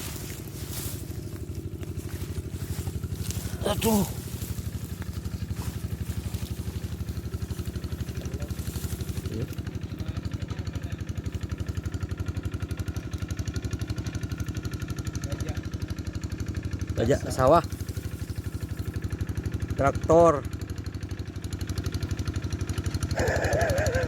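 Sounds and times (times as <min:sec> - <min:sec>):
diesel engine chugging: 0:00.0 - 0:24.0.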